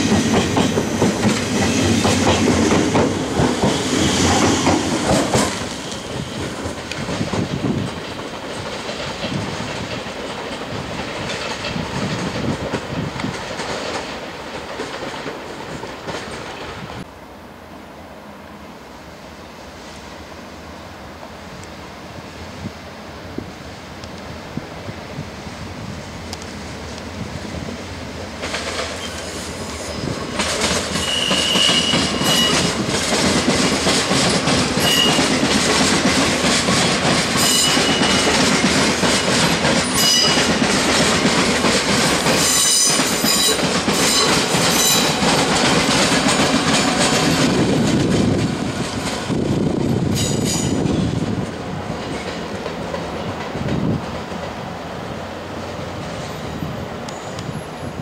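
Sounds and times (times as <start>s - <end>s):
train wheels clacking over rail joints: 0.0s - 17.1s, 27.7s - 54.8s
train wheels squealing: 3.6s - 6.6s, 28.9s - 32.8s, 34.2s - 35.5s, 37.3s - 40.7s, 42.2s - 45.3s, 50.1s - 51.1s, 55.9s - 58.0s.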